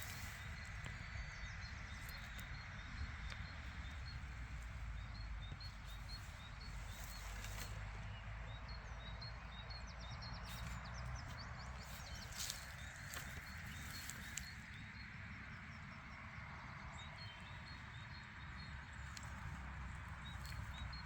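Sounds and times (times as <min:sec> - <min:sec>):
small bird chirping: 0:00.0 - 0:15.1
steady low rumble: 0:00.0 - 0:21.0.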